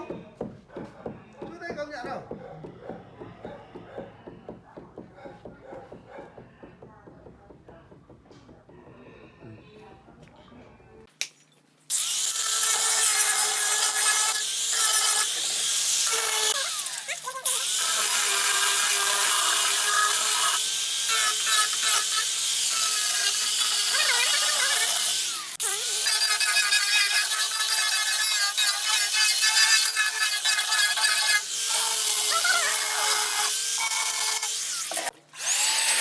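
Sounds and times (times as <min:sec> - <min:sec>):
power tool whining on wood: 0:12.0 - 0:36.0.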